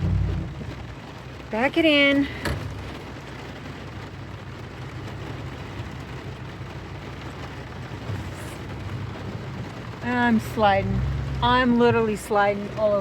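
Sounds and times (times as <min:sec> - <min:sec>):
rain hissing: 0:00.0 - 0:13.0
truck engine running: 0:00.0 - 0:13.0.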